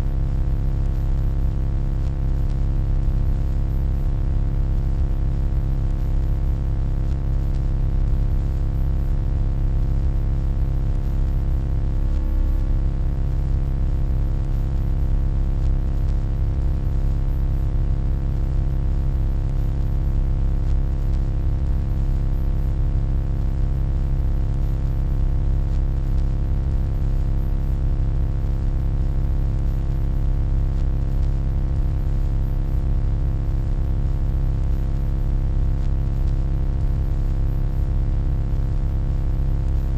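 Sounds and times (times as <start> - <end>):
electronic hum: 0.0 - 39.9.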